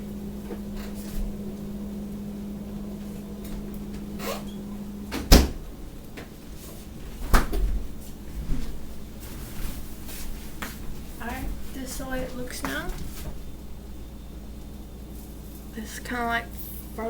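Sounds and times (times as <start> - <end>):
kitchen appliance humming: 0.0 - 17.0
appliance door clunking: 2.6 - 6.4, 7.0 - 8.9.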